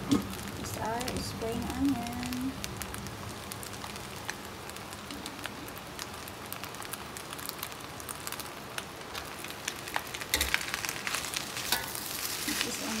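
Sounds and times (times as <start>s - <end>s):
fried rice sizzling in a wok: 0.0s - 13.0s
spatula stirring and scraping: 9.1s - 13.0s.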